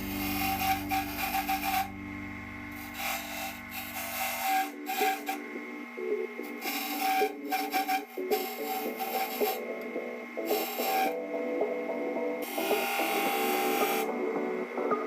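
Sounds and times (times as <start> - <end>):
low hum: 0.0 - 6.6
quiet background music: 0.0 - 15.0.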